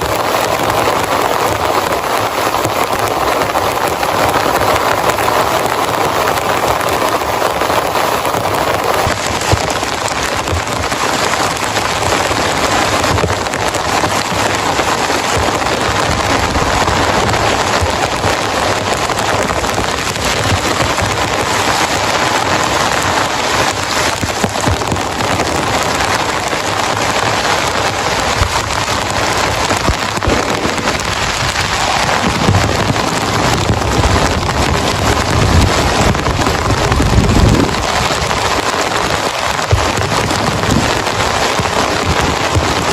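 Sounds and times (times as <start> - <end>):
heavy rain drumming on tarp: 0.0 - 42.9
low rumbling: 11.8 - 42.9.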